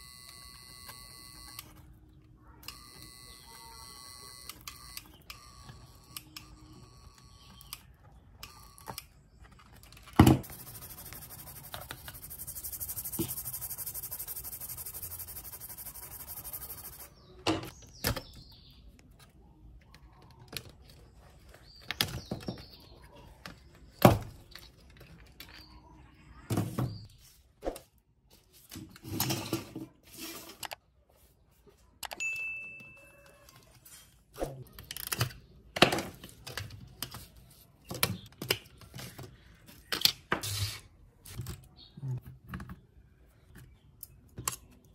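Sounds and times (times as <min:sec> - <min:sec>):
clicks and knocks of handled parts: 0:07.6 - 0:10.5.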